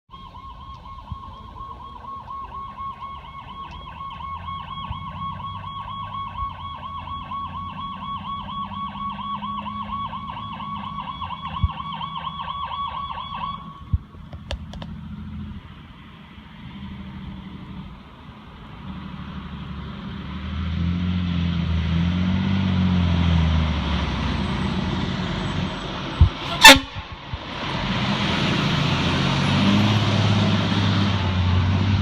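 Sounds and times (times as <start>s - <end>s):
warbling electronic siren: 0.1s - 13.9s
heavy diesel engine rumble: 13.7s - 32.0s.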